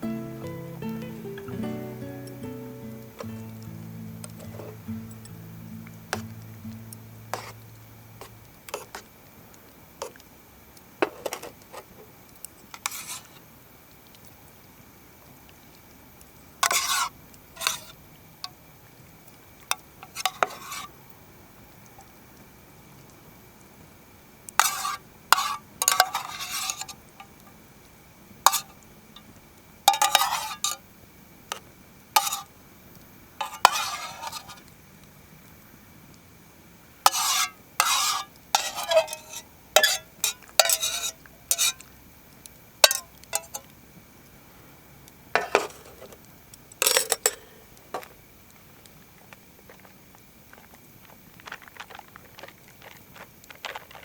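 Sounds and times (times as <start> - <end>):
metal utensil scraping pot: 4.2 - 5.4, 7.2 - 9.0, 12.8 - 13.3, 16.6 - 18.0, 20.0 - 20.9, 24.6 - 27.0, 28.5 - 28.8, 29.9 - 30.8, 32.2 - 32.5, 33.4 - 34.6, 37.1 - 41.8, 42.8 - 43.7, 46.8 - 47.4.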